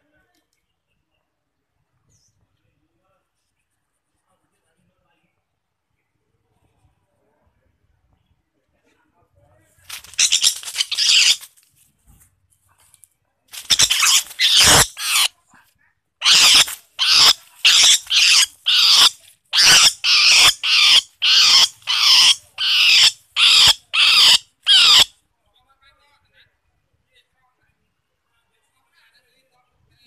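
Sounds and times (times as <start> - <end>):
animal loud harsh calls: 10.0 - 11.4, 13.7 - 15.3, 16.2 - 25.1.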